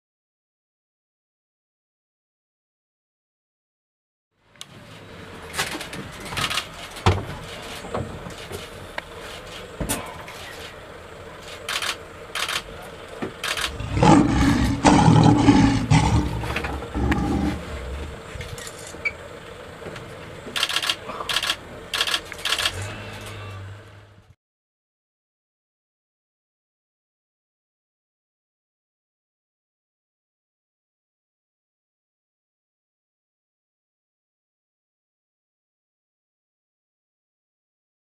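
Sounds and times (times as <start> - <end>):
lion roaring: 13.6 - 18.5.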